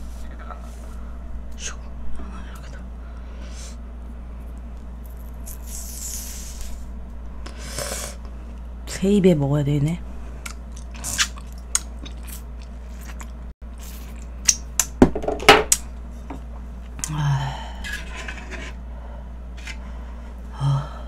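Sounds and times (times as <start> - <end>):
chewing with wet mouth smacks: 10.4 - 14.7.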